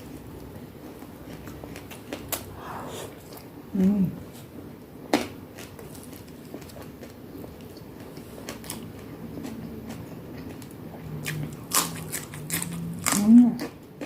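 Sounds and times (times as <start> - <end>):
chewing food: 5.5 - 14.0.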